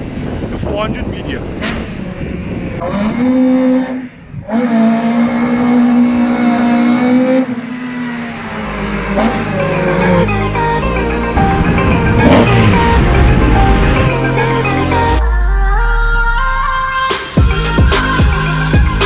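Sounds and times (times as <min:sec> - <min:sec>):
car engine revving hard: 0:02.8 - 0:10.3, 0:11.3 - 0:15.1.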